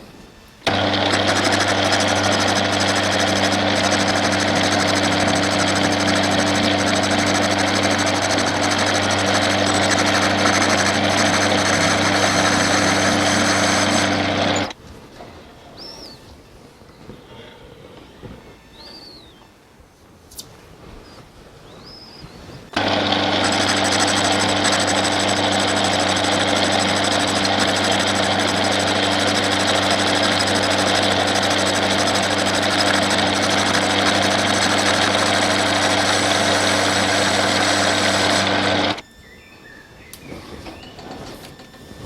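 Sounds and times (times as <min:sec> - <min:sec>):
metal lathe humming: 0:00.6 - 0:14.8, 0:22.7 - 0:39.0.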